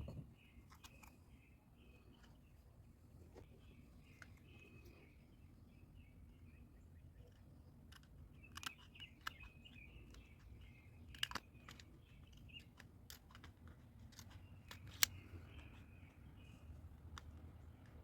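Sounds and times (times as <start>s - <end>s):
low steady hum: 0.0s - 18.0s
metal parts and tools clicking: 7.3s - 15.8s.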